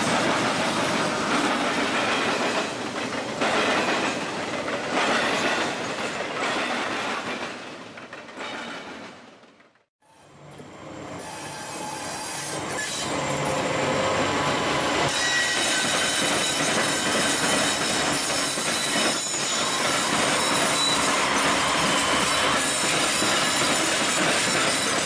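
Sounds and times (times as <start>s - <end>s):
high wheel squeal: 11.2s - 25.0s.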